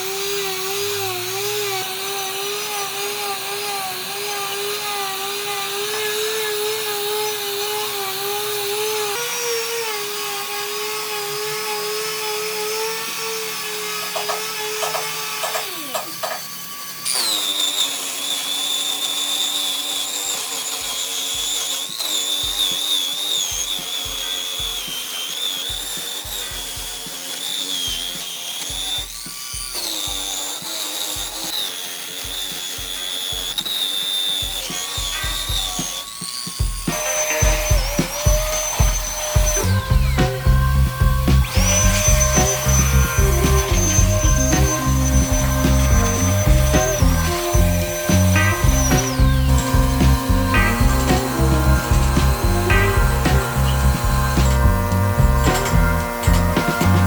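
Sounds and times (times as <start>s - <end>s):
higher-pitched tool whine: 0.0s - 57.0s
power tool motor whine: 0.0s - 57.0s
low thumps: 36.6s - 57.0s.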